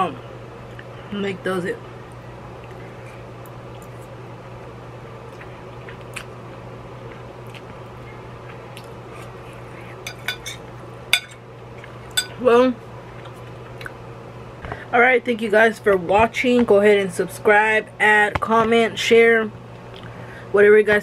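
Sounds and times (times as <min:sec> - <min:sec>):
steady low hum: 0:00.0 - 0:21.0
fork clinking in a ceramic bowl: 0:10.1 - 0:10.6, 0:11.2 - 0:11.4, 0:12.2 - 0:12.4.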